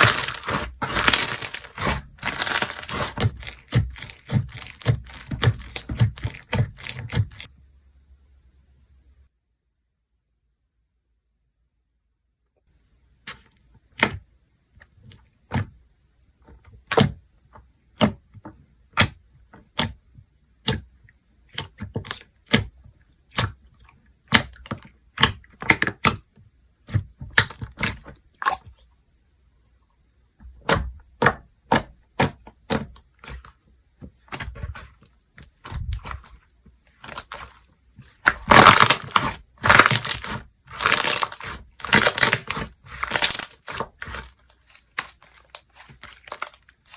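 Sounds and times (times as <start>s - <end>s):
slime crackling: 0.0s - 7.5s, 34.3s - 46.9s.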